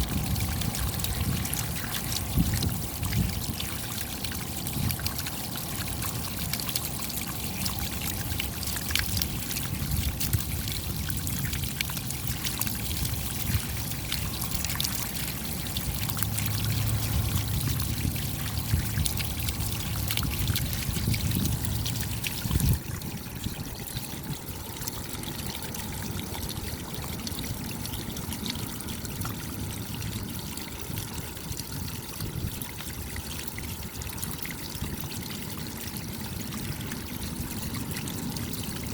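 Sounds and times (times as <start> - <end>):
raindrops ticking: 0.0 - 22.5
running water trickle: 0.0 - 38.9.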